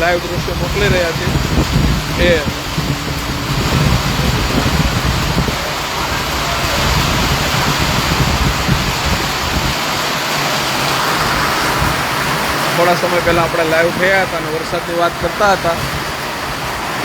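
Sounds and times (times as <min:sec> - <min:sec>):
low rumble: 0:00.0 - 0:09.8
heavy rain on metal roof: 0:00.0 - 0:17.0.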